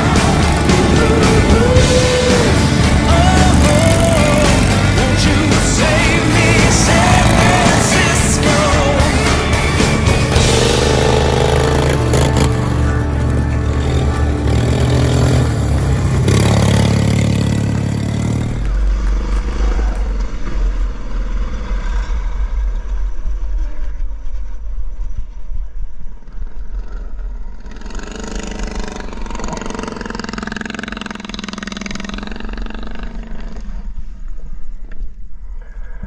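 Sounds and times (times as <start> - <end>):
racing engine revving: 0.0 - 20.6.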